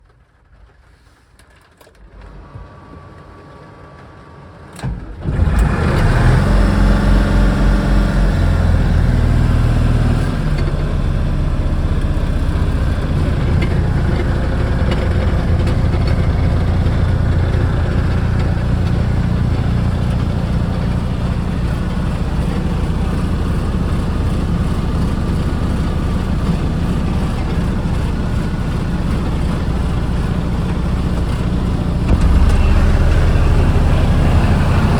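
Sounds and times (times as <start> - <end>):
diesel engine starting and idling: 2.0 - 34.9.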